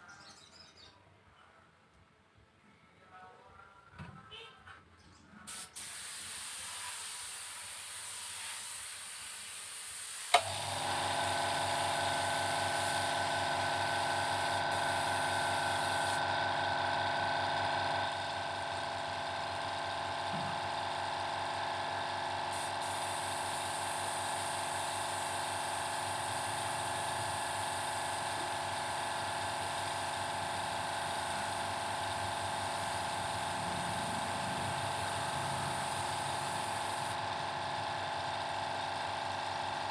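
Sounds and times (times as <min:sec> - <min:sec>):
spray gun hissing: 0:05.5 - 0:16.9, 0:22.4 - 0:37.2
air compressor running: 0:05.5 - 0:39.9.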